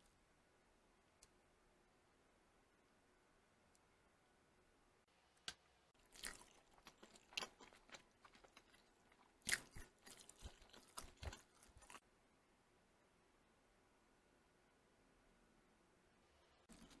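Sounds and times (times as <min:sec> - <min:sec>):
crunchy chewing: 0:06.0 - 0:12.0.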